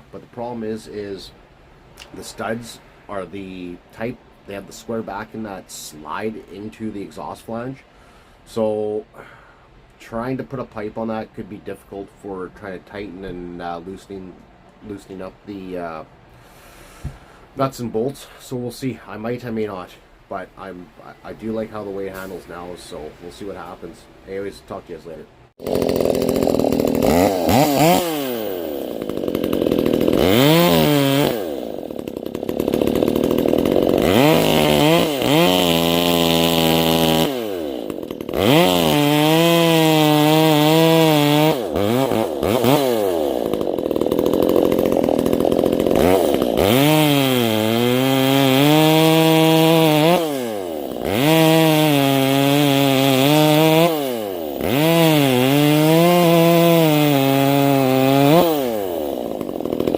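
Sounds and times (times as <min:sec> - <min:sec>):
chainsaw cutting wood: 0:25.6 - 0:59.9.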